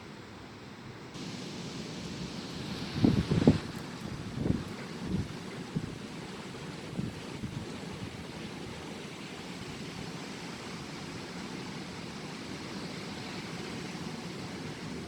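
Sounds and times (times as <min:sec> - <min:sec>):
strong wind buffeting microphone: 0:01.2 - 0:12.7.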